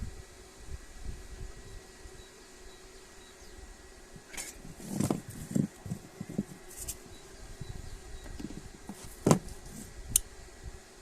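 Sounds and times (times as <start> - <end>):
parts knocking and bumping: 8.3 - 9.7.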